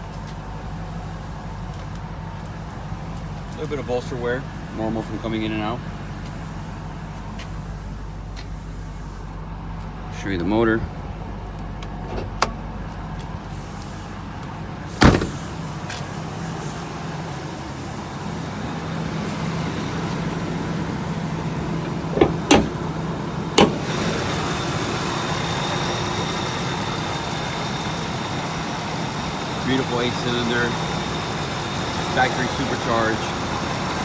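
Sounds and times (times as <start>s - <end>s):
truck engine idling: 0.0s - 34.0s
door and hood clunks: 12.0s - 12.6s, 15.0s - 15.7s, 21.3s - 24.2s.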